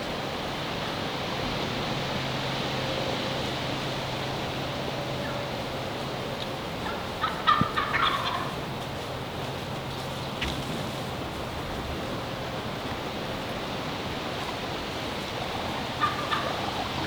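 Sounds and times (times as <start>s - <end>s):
turkey gobbling: 6.2s - 17.0s
wind hiss: 9.0s - 17.0s.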